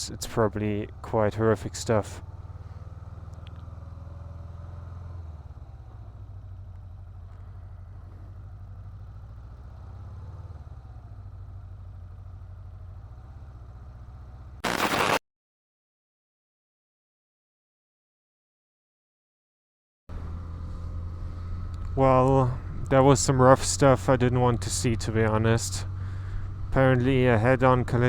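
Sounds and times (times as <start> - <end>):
motorcycle engine at low revs: 0.0 - 14.8, 20.1 - 28.0
loud rush of noise: 14.6 - 15.2.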